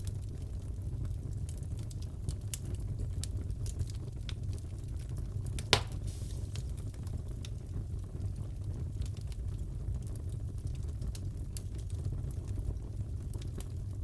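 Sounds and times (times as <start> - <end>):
wood fire crackling: 0.0 - 14.0
fire popping: 4.3 - 9.2.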